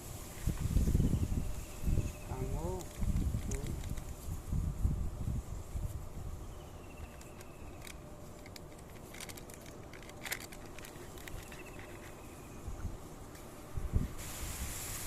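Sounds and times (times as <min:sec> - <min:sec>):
small clicks and ticks: 0:02.6 - 0:04.3, 0:07.0 - 0:12.2.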